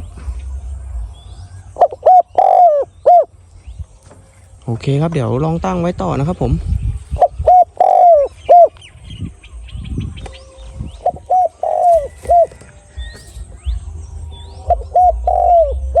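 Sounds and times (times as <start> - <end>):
small birds chirping: 0.0 - 16.0
dove cooing: 1.8 - 3.3, 7.1 - 8.7, 10.4 - 13.7, 14.6 - 16.0.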